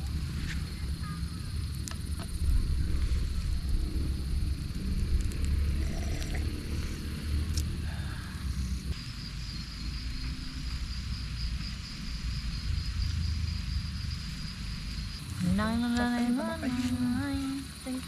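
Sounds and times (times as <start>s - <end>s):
low rumble: 0.0s - 17.4s
cricket trilling: 0.0s - 18.0s
person's voice: 15.4s - 18.0s.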